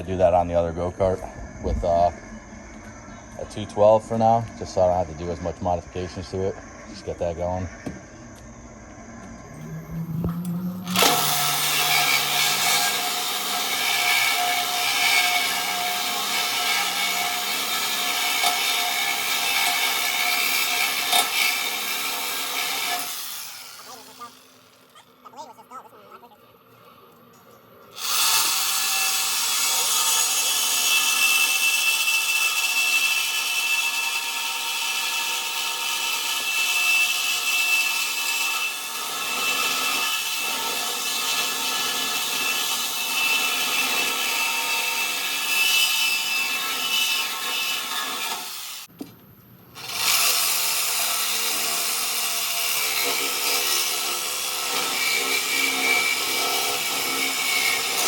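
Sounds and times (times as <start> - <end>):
power tool cutting steel: 9.5 - 24.8, 28.0 - 48.9, 49.8 - 58.0.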